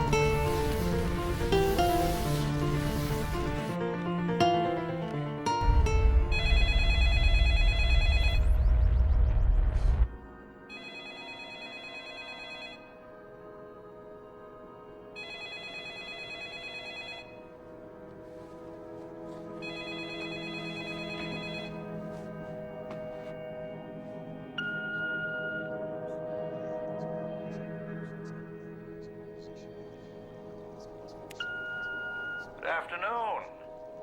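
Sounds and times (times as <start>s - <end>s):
soft sustained music: 0.0s - 34.0s
loud low rumble: 5.6s - 10.2s
telephone ringing: 5.7s - 8.6s, 10.7s - 13.1s, 15.2s - 17.8s, 19.6s - 22.3s, 31.4s - 33.7s.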